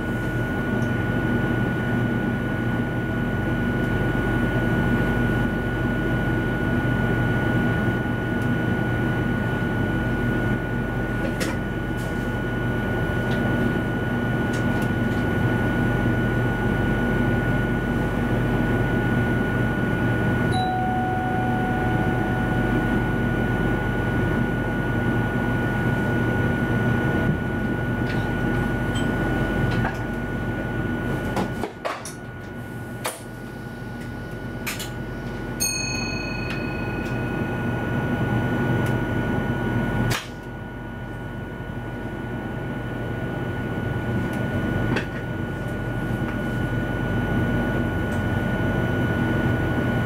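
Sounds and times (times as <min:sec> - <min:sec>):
electric train equipment hum: 0:00.0 - 0:50.0
high whine: 0:03.6 - 0:31.1, 0:33.0 - 0:40.6.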